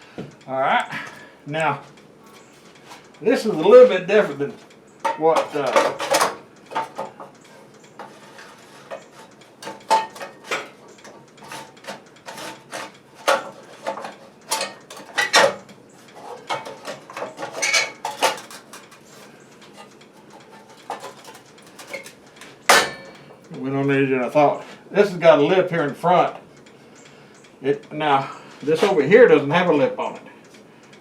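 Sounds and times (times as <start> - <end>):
metal tools clinking and knocking: 5.0 - 7.1, 9.6 - 10.8, 12.3 - 15.6, 16.2 - 19.2, 19.8 - 23.4.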